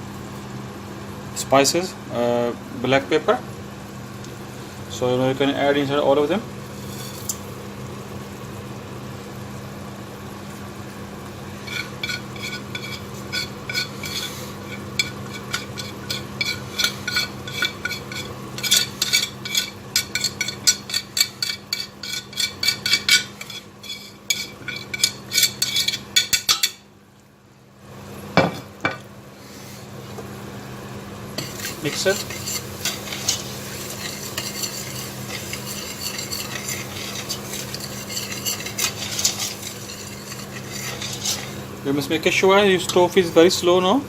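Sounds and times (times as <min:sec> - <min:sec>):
food sizzling: 0:02.9 - 0:27.0, 0:27.9 - 0:43.0
spoon scraping a pan: 0:06.7 - 0:07.5, 0:11.6 - 0:26.8, 0:31.4 - 0:41.8.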